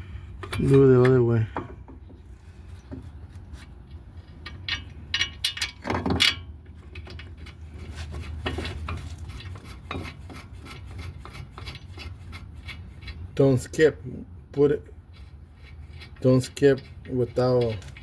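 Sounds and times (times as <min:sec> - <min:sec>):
low steady hum: 0:00.0 - 0:18.0
metal parts and tools clinking: 0:04.2 - 0:07.6.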